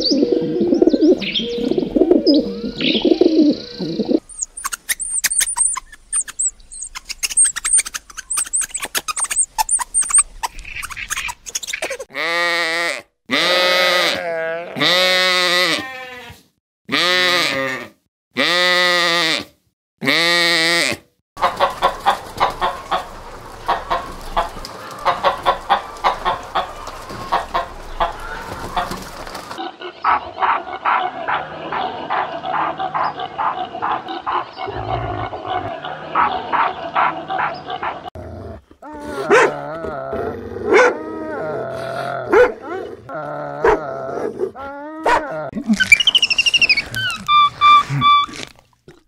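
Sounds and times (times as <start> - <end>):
chickens clucking: 0.0 - 12.0, 21.4 - 34.8
scratching and pecking clicks: 4.4 - 12.0
sheep bleating: 12.1 - 19.4
dog barking: 30.1 - 34.5, 36.1 - 38.0, 39.2 - 39.6, 40.7 - 41.0, 42.3 - 42.9, 45.0 - 45.3.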